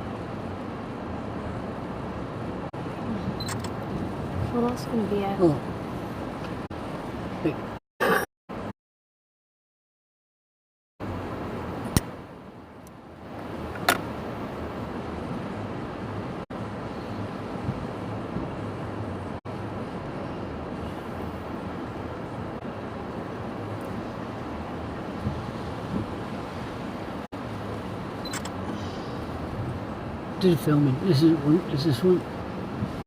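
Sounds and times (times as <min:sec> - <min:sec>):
stormy sea: 0:00.0 - 0:07.8, 0:11.0 - 0:33.0
wind on microphone: 0:20.0 - 0:30.3.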